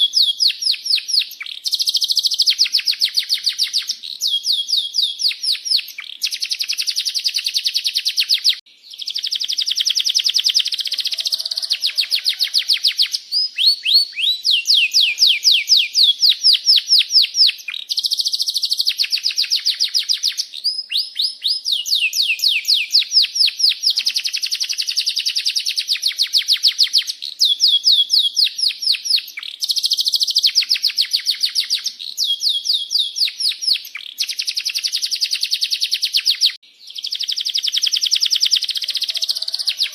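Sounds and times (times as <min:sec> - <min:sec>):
canary singing in rolling trills: 0:00.0 - 0:39.9.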